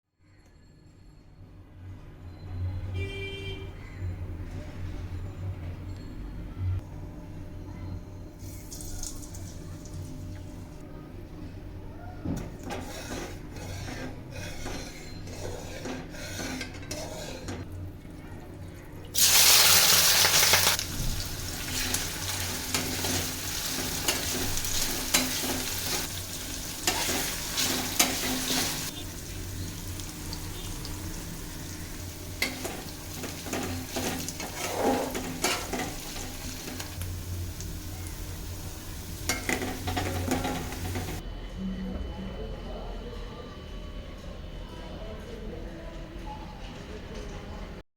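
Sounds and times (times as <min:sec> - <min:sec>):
utensil stirring and clinking pan: 0:12.4 - 0:17.7, 0:21.5 - 0:29.4, 0:31.6 - 0:37.0, 0:38.4 - 0:41.2
onions sizzling in hot oil: 0:19.2 - 0:41.2.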